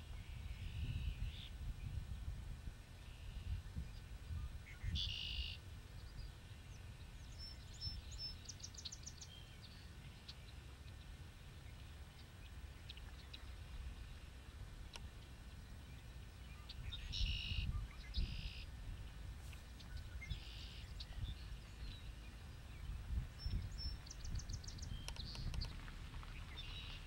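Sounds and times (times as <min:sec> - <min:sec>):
steady low rumble: 0:00.0 - 0:27.0
songbirds calling: 0:02.8 - 0:27.0
high ticking bird notes: 0:23.4 - 0:25.8.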